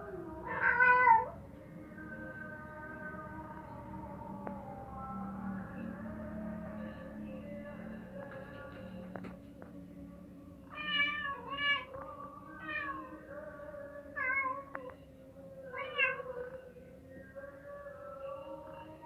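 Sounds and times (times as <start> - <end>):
cat meowing: 0.4 - 1.4, 10.7 - 12.0, 15.8 - 16.4.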